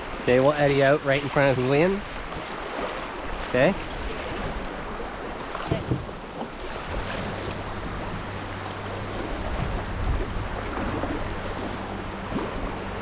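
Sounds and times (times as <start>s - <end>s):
low rumble: 5.8s - 13.0s.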